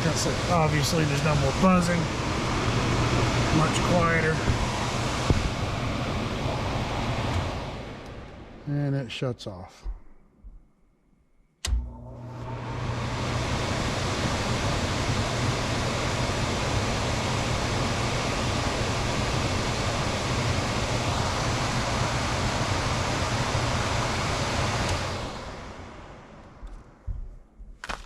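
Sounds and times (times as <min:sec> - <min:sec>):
blower motor rushing air: 0:00.0 - 0:09.0, 0:11.7 - 0:27.3.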